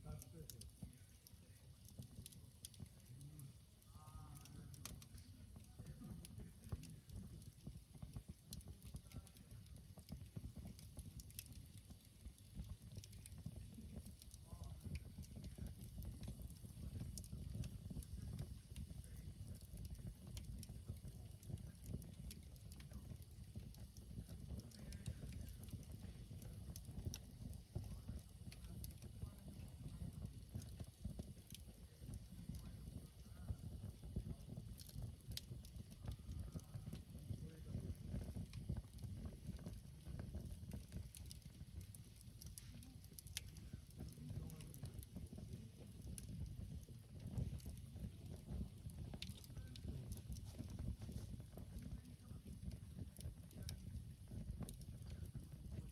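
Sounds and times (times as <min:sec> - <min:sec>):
campfire crackling: 0:00.0 - 0:55.9
fire pops and snaps: 0:00.0 - 0:55.9.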